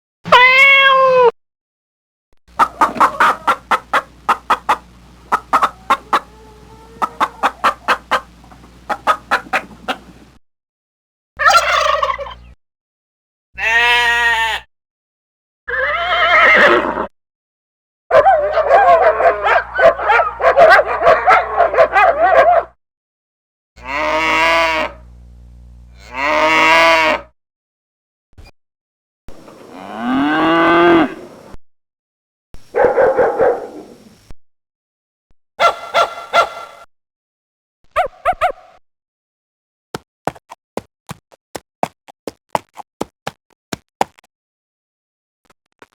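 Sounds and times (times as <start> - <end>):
animal calls: 2.6 - 10.2, 11.4 - 12.4, 35.6 - 36.8.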